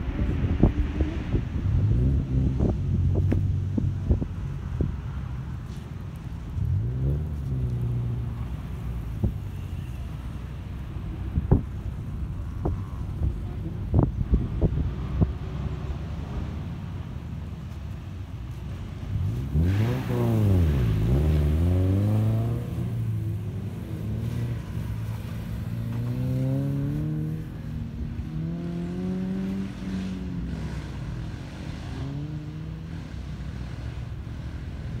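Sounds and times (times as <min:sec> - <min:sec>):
car engine revving: 0:18.7 - 0:35.0.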